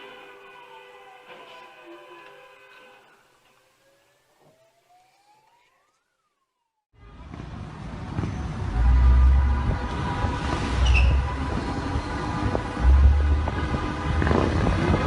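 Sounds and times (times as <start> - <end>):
faint siren wail: 0.2 - 7.4
loud rumbling with bass thumps: 7.2 - 15.0.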